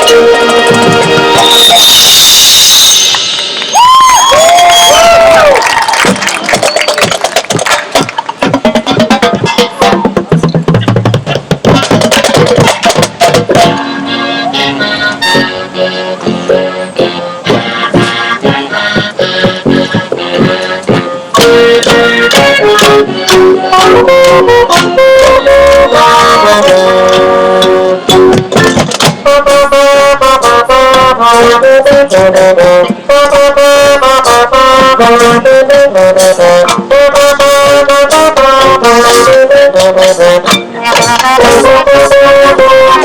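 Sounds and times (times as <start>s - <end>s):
sharp percussion hits: 0.0s - 4.1s, 6.0s - 14.0s, 16.2s - 43.0s
brass melody: 0.0s - 6.6s, 7.9s - 10.2s, 11.2s - 43.0s
marching band playing: 0.0s - 43.0s.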